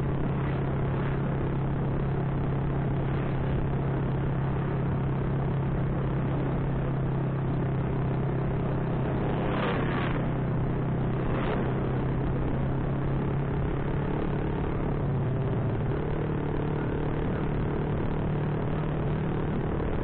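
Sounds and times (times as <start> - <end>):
motorcycle engine cruising: 0.0 - 20.0
road and wind noise: 0.0 - 20.0.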